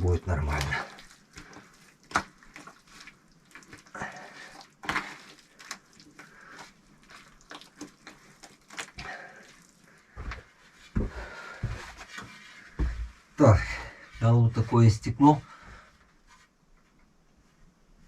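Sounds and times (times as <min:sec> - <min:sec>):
wet clay scraping: 0:00.0 - 0:12.9.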